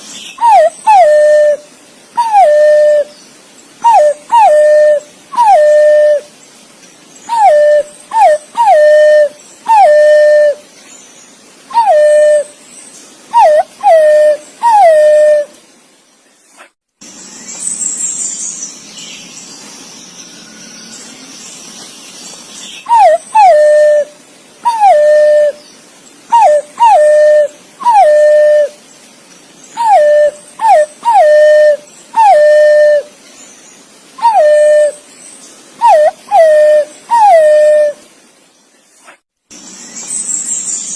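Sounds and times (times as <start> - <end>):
pigeon whistled calls: 0.4 - 1.6, 2.2 - 3.1, 3.8 - 6.3, 7.3 - 10.6, 11.7 - 12.5, 13.3 - 15.5, 22.9 - 24.1, 24.7 - 25.6, 26.3 - 28.8, 29.8 - 33.1, 34.2 - 35.0, 35.8 - 38.0.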